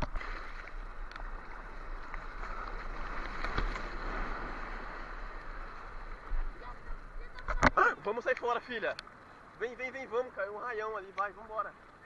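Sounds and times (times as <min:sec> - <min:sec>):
surf washing and hissing: 0:00.0 - 0:12.0.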